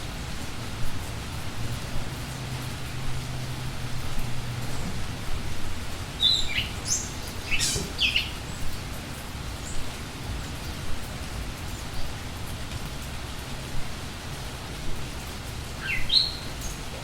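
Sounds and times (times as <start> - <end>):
rain falling: 0.0 - 17.0
high bird chirps: 6.2 - 8.4, 15.8 - 16.8.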